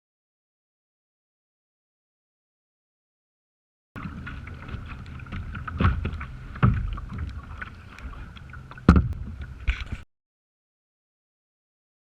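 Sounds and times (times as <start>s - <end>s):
thumps and splashes: 4.0s - 10.0s
wind rumbling on microphone: 4.0s - 10.0s.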